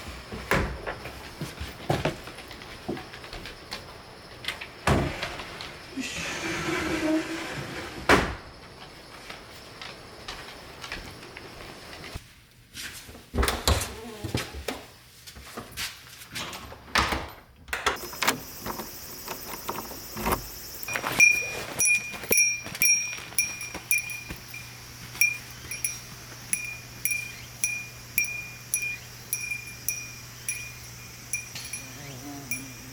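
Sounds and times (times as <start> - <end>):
small metal bell ringing: 20.8 - 32.9.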